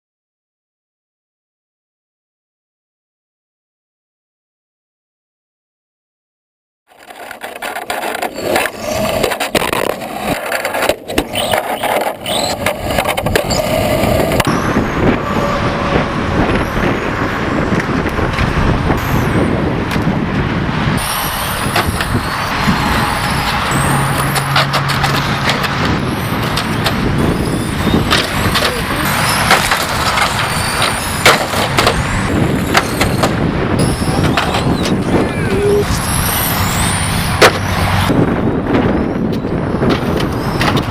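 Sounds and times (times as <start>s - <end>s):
tyre and track noise: 6.9s - 40.9s
rc car motor whine: 11.2s - 17.8s, 21.0s - 39.6s
knocks and clicks: 24.2s - 27.0s.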